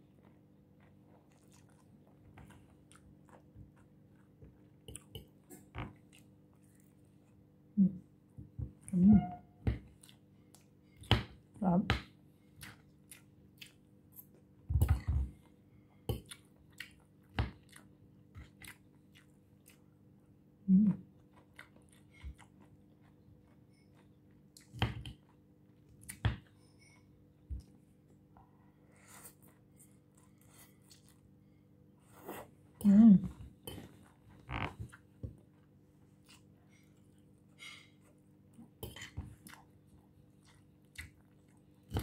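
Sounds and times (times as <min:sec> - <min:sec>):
chewing and crunching lettuce: 0:00.0 - 0:07.4, 0:12.4 - 0:20.2.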